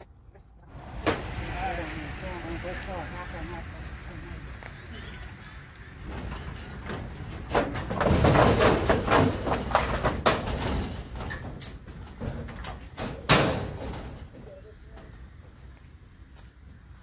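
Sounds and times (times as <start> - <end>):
loud bang: 0.7 - 11.2
wooden boards clattering and scraping: 5.8 - 14.4.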